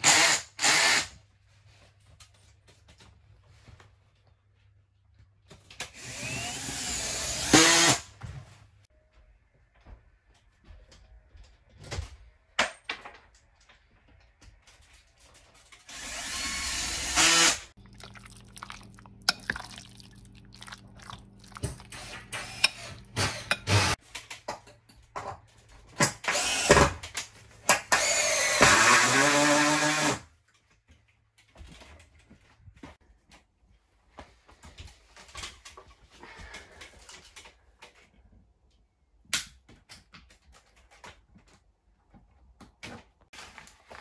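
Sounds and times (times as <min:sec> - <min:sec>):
power drill running: 0:06.0 - 0:08.0, 0:15.9 - 0:17.7, 0:22.0 - 0:24.0.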